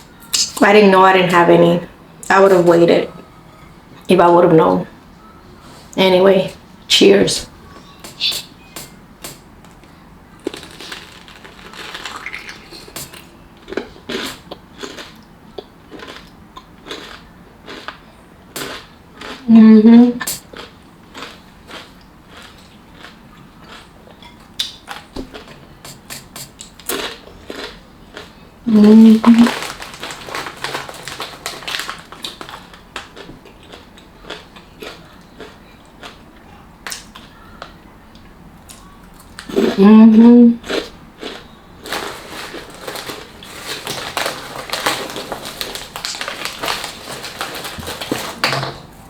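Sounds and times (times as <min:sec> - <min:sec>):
crisp crunches of eating: 0:07.7 - 0:19.5, 0:20.2 - 0:37.8, 0:40.6 - 0:48.6
wet mouth smacks: 0:25.8 - 0:26.8.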